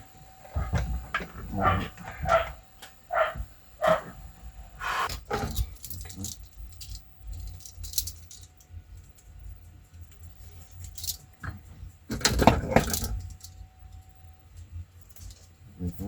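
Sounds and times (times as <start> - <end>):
dog barking: 1.6 - 4.2.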